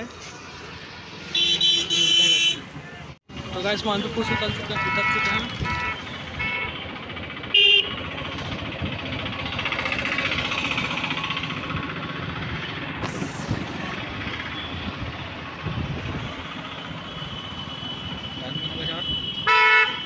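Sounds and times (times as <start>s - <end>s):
passing vehicles: 0.0s - 20.0s
car horn toot: 1.3s - 2.7s, 4.0s - 6.8s, 7.5s - 8.0s, 16.8s - 20.0s.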